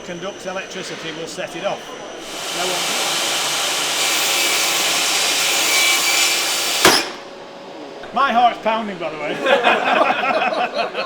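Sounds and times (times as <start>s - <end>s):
power saw running: 2.1s - 7.4s
saw brake bang: 3.9s - 7.3s.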